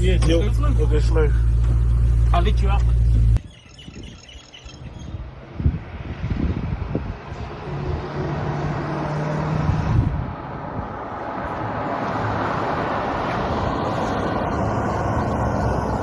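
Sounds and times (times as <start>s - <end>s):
car engine running: 0.0s - 3.4s
road noise rushing: 0.0s - 3.5s, 4.6s - 16.0s.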